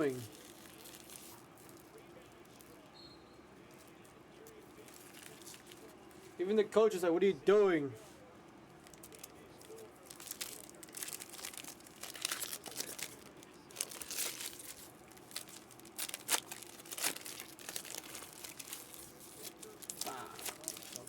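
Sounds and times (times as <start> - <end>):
card pack wrappers crinkling: 0.0 - 2.8, 4.8 - 5.9, 8.8 - 21.0.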